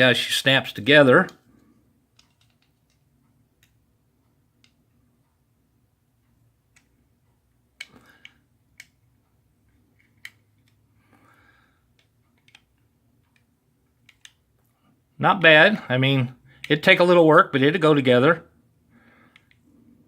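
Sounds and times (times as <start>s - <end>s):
plastic parts clicking: 1.2s - 3.8s, 7.8s - 9.0s, 9.7s - 10.8s, 11.9s - 14.7s, 19.3s - 19.6s.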